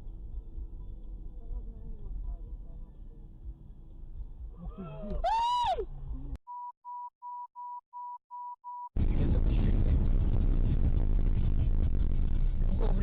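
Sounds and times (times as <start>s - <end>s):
car road and engine rumble: 0.0s - 6.4s, 9.0s - 13.0s
short electronic beeps: 6.5s - 8.9s.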